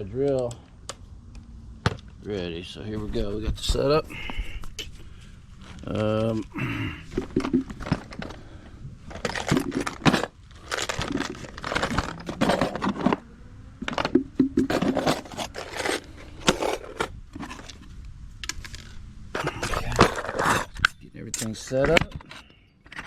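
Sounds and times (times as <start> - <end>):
rustling: 3.0 - 23.0
hand tools clinking and knocking: 9.1 - 13.2.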